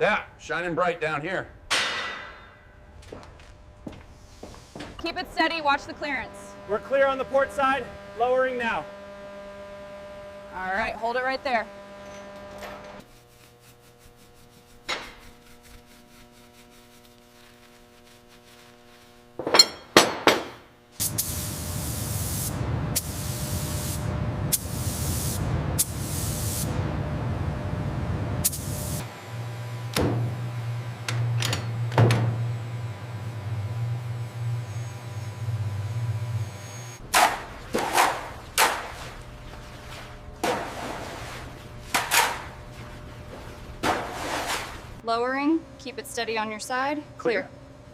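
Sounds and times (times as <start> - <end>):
low hum: 1.5 - 13.5, 21.2 - 47.9
sharp metallic clanks: 1.7 - 2.8
sharp ringing knocks: 1.7 - 2.8
machinery rumble: 2.4 - 13.0, 21.4 - 38.6
hissing spray bursts: 21.0 - 26.8, 28.4 - 29.1.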